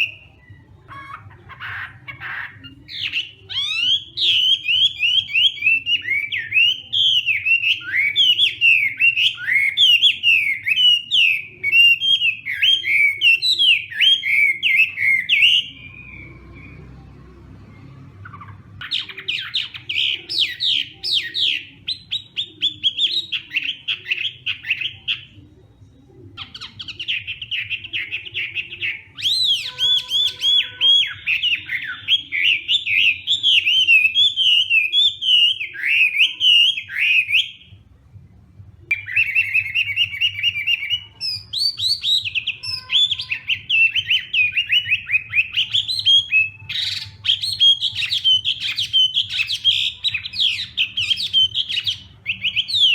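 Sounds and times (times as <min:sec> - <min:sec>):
bird singing whistled notes: 0:02.6 - 0:17.0, 0:26.4 - 0:37.8, 0:38.9 - 0:52.9.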